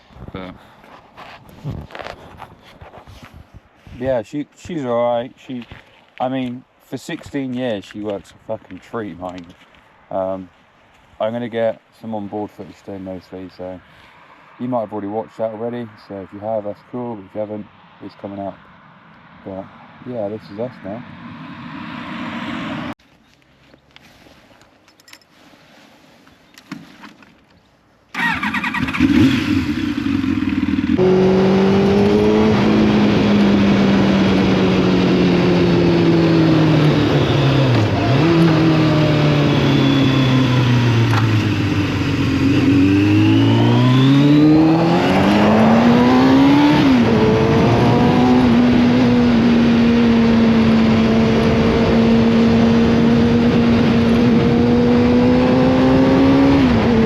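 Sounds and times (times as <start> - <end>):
heavy wind noise: 0.0 - 4.2, 44.4 - 57.0
motorcycle engine: 28.1 - 57.0.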